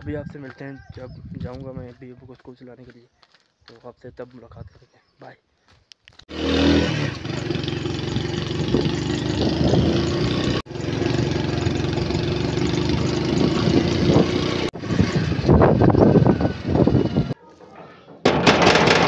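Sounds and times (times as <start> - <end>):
motorcycle engine idling: 7.2 - 17.4.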